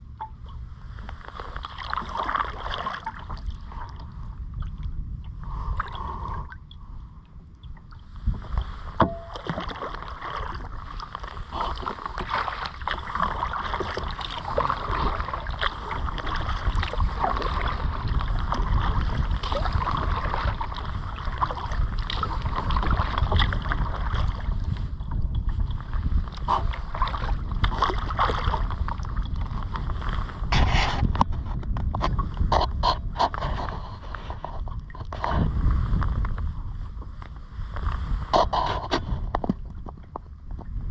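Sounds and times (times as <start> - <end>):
wind rumble on microphone: 0.0 - 40.9
water rushing and splashing: 1.2 - 4.2, 7.8 - 24.9, 25.6 - 30.3.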